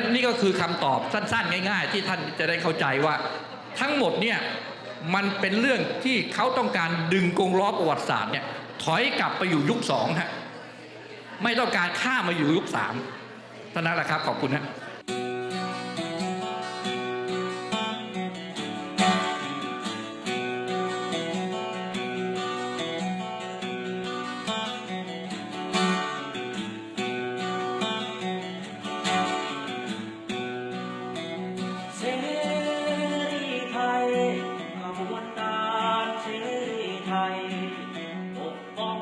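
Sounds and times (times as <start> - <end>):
acoustic guitar strumming: 0.0 - 10.5, 14.0 - 39.0
person singing: 31.8 - 39.0.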